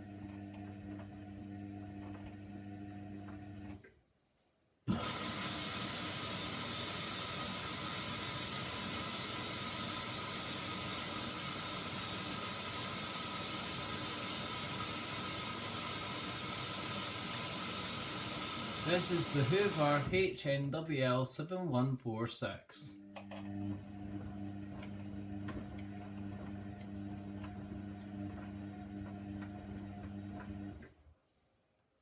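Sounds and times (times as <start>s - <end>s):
washing machine water hissing: 4.9s - 20.2s.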